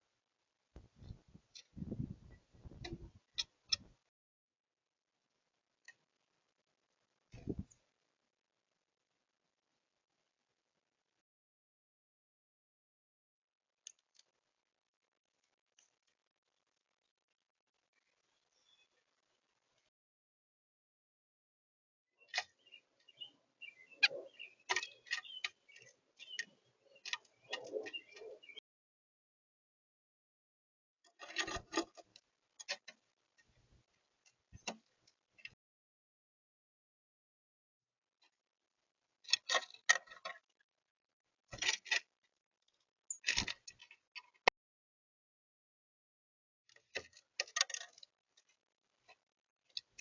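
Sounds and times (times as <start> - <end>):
birds tapping and clicking: 0.8 - 4.0, 22.2 - 28.6, 31.1 - 35.6, 39.2 - 40.5, 41.5 - 42.1, 46.7 - 50.0
soft bird chirps: 17.9 - 19.1, 22.2 - 28.6.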